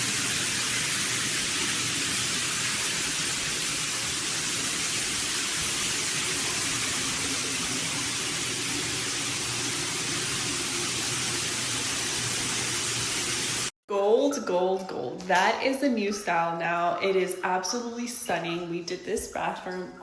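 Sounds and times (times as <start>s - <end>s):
shower water spraying: 0.0s - 13.8s.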